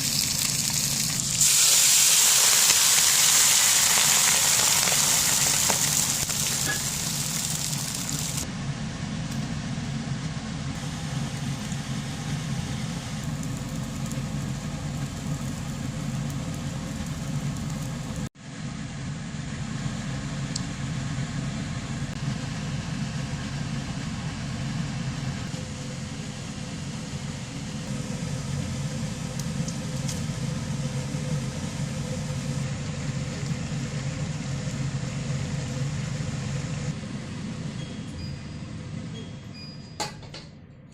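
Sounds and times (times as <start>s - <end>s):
vehicle engine humming: 2.9s - 18.4s, 25.2s - 37.8s.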